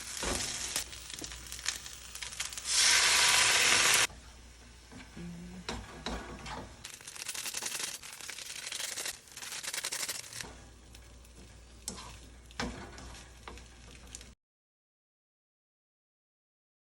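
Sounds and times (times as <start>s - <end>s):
noodles sizzling in a frying pan: 0.0s - 5.0s, 6.4s - 14.4s.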